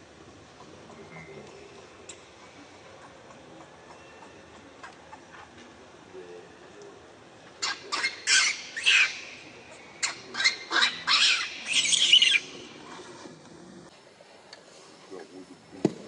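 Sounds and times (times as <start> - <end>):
monkey screeching: 7.6 - 9.4, 10.0 - 12.5.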